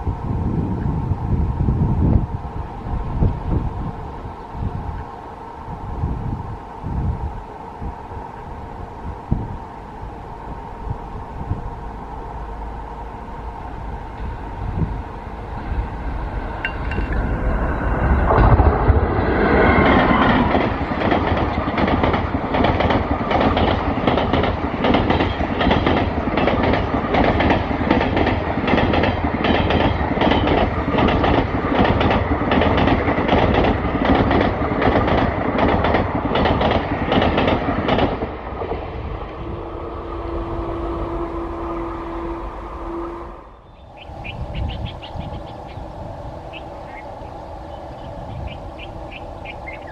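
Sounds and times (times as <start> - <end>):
train passing at speed: 0.0 - 49.9
wheels clicking over rail joints: 16.5 - 17.5, 20.1 - 39.4
steady tone: 38.8 - 44.6.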